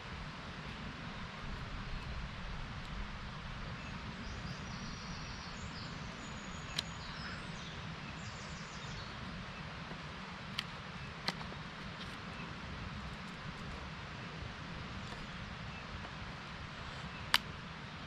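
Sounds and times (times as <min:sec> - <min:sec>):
outdoor ambience: 0:00.0 - 0:18.0
small birds trilling: 0:03.5 - 0:13.3.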